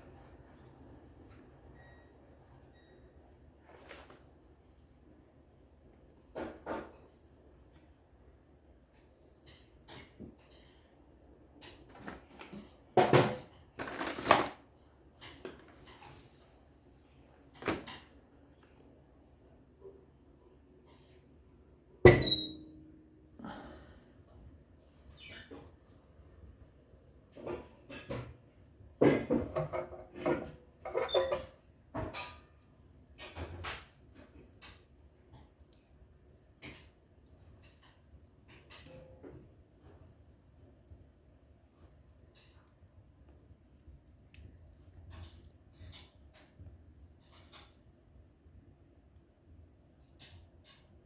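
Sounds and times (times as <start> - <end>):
objects knocking and clattering: 29.0 - 32.3.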